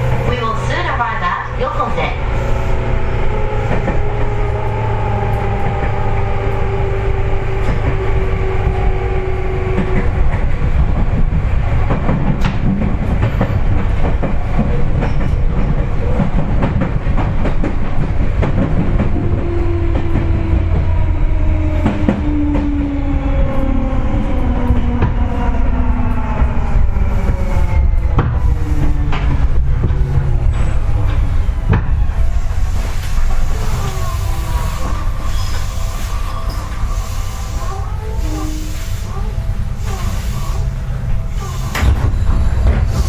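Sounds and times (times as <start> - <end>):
train low rumble: 0.0 - 43.0
train motor whine: 1.7 - 10.7, 19.0 - 43.0.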